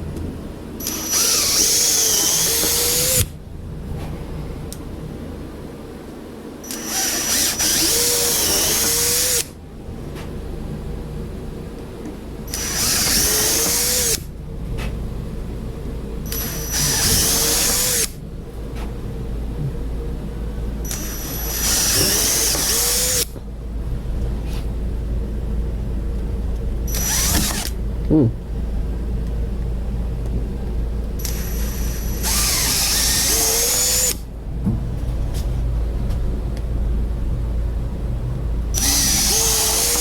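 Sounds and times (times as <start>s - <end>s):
electric drill whining: 0.8s - 3.3s, 6.6s - 9.6s, 12.5s - 14.3s, 16.3s - 18.2s, 20.8s - 23.4s, 26.9s - 27.8s, 31.2s - 34.3s, 38.7s - 40.0s.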